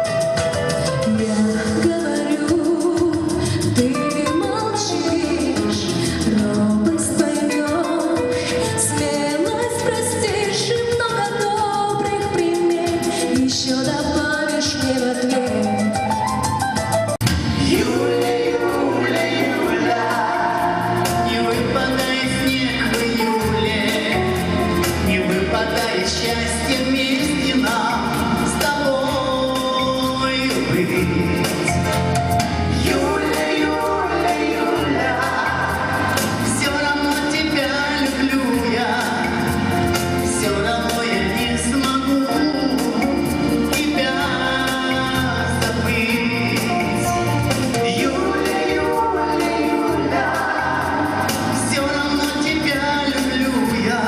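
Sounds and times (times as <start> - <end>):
live pop band playing: 0.0 - 54.0
steady drum beat: 0.0 - 54.0
person singing: 17.5 - 32.0, 32.8 - 54.0.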